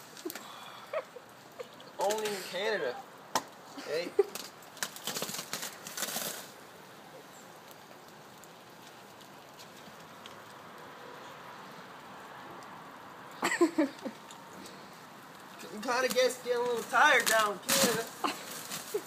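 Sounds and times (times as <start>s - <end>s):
freezing rain hissing: 0.0s - 19.0s
brief rustle: 17.2s - 19.0s.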